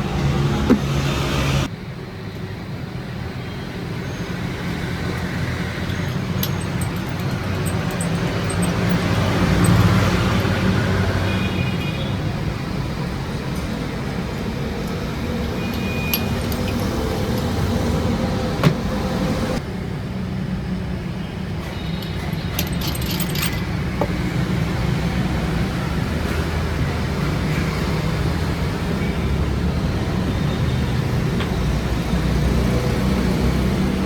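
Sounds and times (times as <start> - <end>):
workshop machinery humming: 0.0 - 1.7, 4.4 - 19.6
sharp clicks and knocks: 5.8 - 10.8, 15.6 - 17.9.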